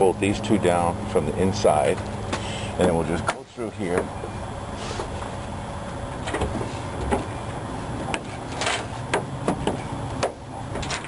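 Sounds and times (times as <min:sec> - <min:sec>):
steady low hum: 0:00.0 - 0:11.0
metal trim clicking and knocking: 0:06.2 - 0:07.3, 0:08.0 - 0:11.0.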